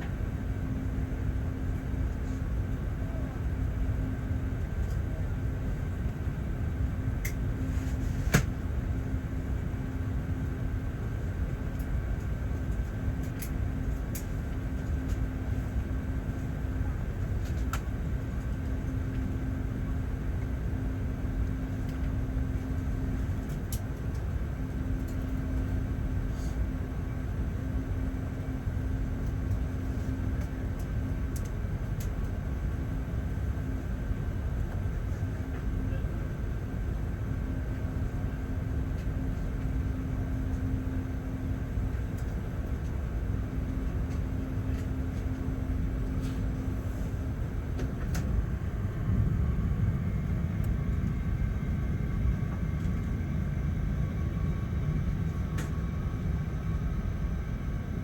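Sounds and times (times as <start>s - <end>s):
aircraft cabin rumble: 0.0s - 58.0s.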